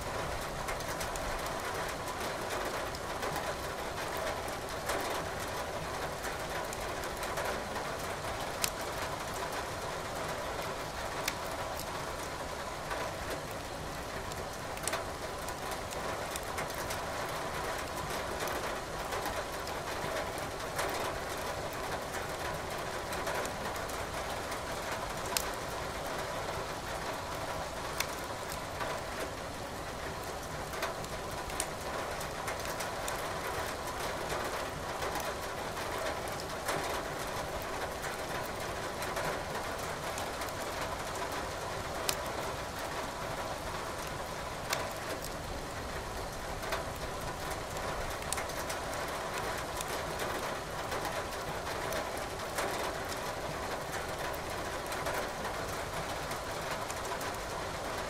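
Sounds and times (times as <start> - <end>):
rain hiss: 0.0 - 58.0
wood fire crackling and popping: 28.0 - 28.6.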